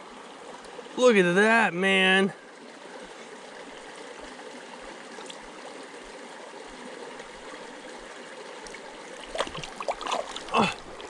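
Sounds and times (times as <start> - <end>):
creek water flowing: 0.0 - 11.0.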